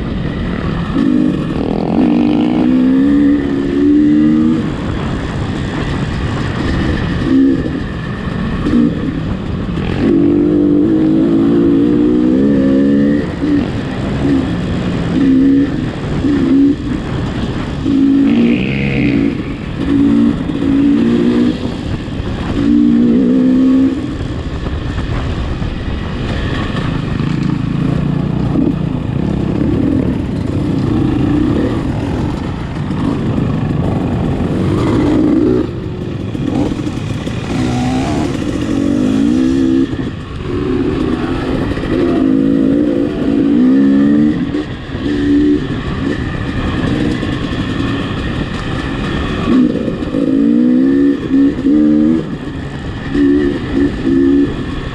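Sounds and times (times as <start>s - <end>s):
vehicle engine revving: 26.6s - 54.8s.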